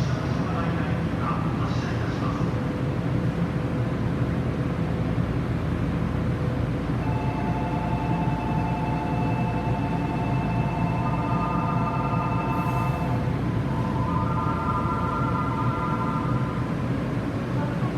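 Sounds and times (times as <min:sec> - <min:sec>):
electric train low rumble: 0:00.0 - 0:17.9
held electronic tones: 0:13.8 - 0:16.6.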